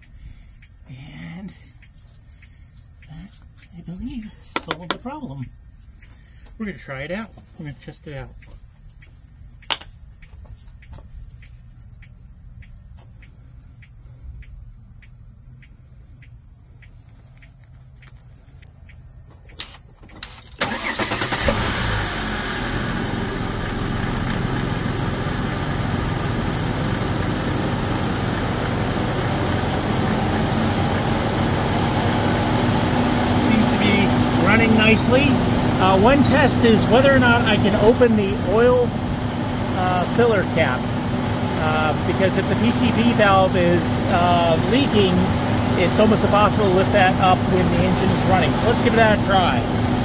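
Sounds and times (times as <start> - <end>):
crickets chirping: 0.0 - 50.0
car engine starting and idling: 20.1 - 50.0.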